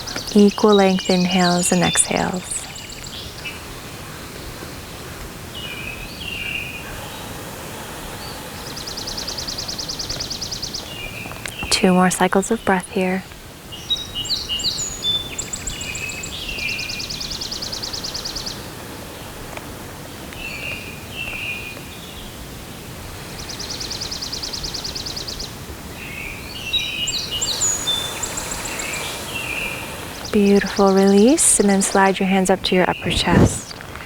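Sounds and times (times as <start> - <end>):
faint outdoor background: 0.0 - 34.0
songbirds chirping: 0.0 - 34.0
bird trill: 13.9 - 19.3, 23.4 - 33.8.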